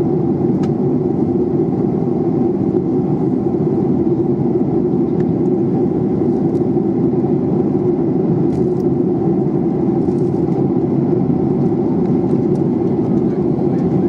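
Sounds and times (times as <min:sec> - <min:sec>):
jet cabin engine and airflow rush: 0:00.0 - 0:14.0.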